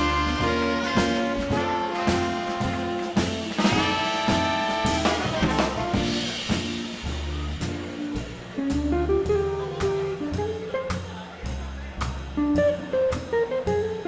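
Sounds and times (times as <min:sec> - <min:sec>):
horn section holding chords: 0:00.0 - 0:06.6
drum kit with cymbal strokes: 0:00.0 - 0:14.0
upright bass walking: 0:00.0 - 0:14.0.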